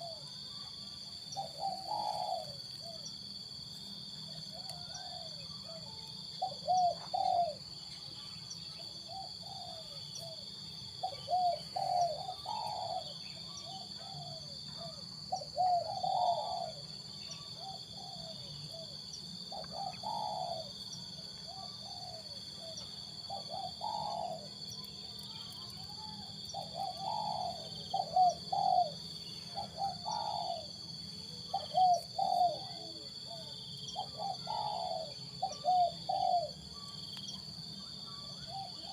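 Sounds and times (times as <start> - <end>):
doves cooing: 1.4 - 3.0, 6.4 - 7.6, 9.1 - 10.4, 11.0 - 17.0, 17.6 - 20.8, 21.5 - 24.6, 26.5 - 30.8, 31.4 - 36.6.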